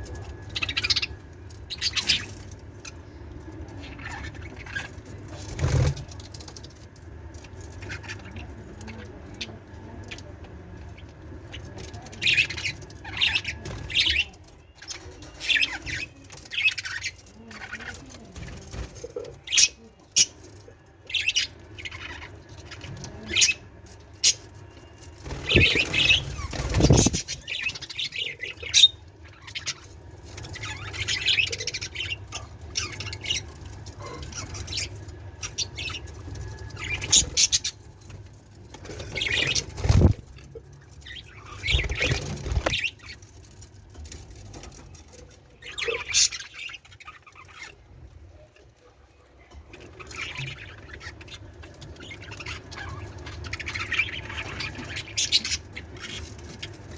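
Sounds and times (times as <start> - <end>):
budgerigars chirping: 25.3 - 29.9, 30.6 - 37.8, 41.0 - 43.2, 49.8 - 56.9.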